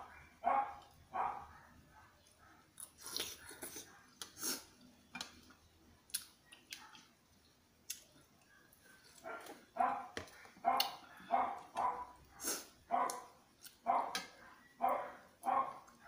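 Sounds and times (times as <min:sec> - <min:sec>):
dog barking: 0:00.0 - 0:02.6, 0:09.2 - 0:16.0
man chewing soup: 0:02.2 - 0:14.2.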